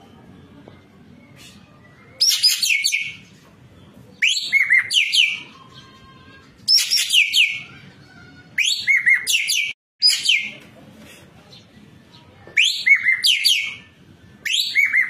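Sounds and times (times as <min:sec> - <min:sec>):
songbird whistled notes: 0:12.6 - 0:15.0.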